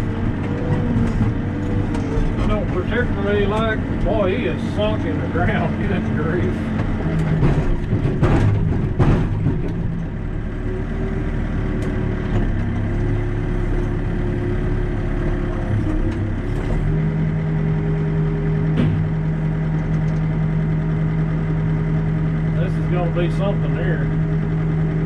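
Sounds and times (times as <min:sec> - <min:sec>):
heavy diesel engine running: 0:00.0 - 0:25.0
knocks: 0:06.7 - 0:10.0, 0:18.8 - 0:19.2.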